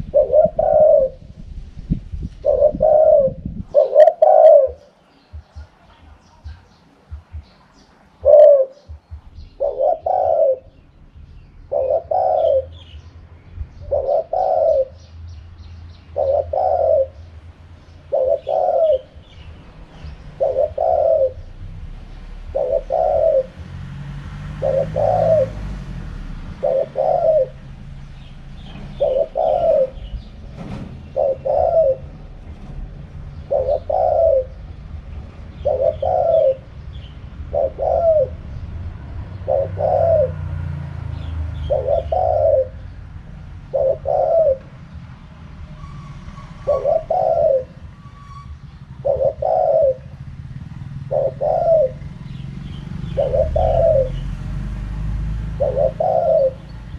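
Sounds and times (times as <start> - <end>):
dove cooing: 0.0 - 1.4, 2.4 - 13.1, 13.7 - 23.8, 24.5 - 30.4, 31.0 - 54.3, 55.1 - 56.9.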